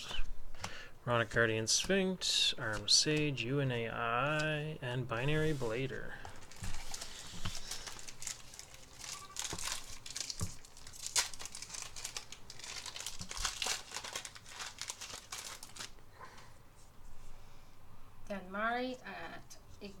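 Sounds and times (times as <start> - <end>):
foil wrapper crinkling and tearing: 6.4 - 16.0.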